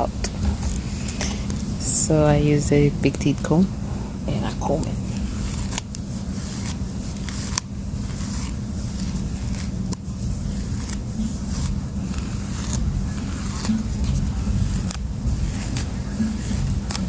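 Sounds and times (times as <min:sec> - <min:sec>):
comb scraping through hair: 0:04.3 - 0:17.0
low rumble: 0:11.3 - 0:17.0.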